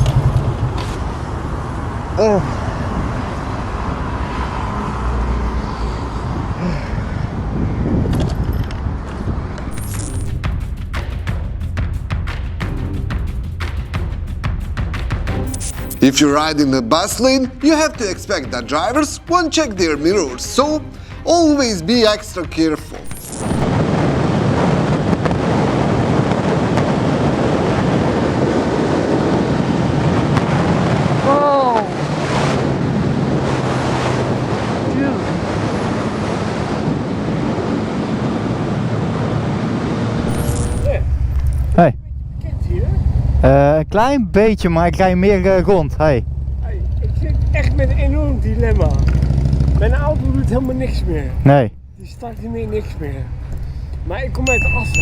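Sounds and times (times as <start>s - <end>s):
wind buffeting microphone: 0.0s - 10.7s, 23.6s - 40.3s
road traffic rumble: 0.0s - 55.0s
sharp clicks: 23.0s - 23.7s.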